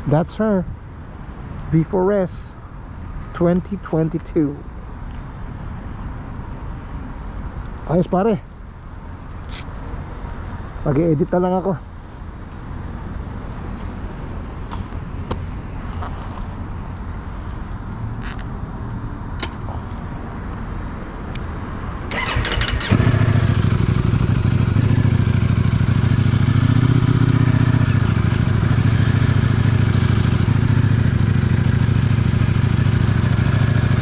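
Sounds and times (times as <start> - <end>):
electric starter cranking: 22.1 - 23.1
motorcycle engine idling: 22.2 - 34.0.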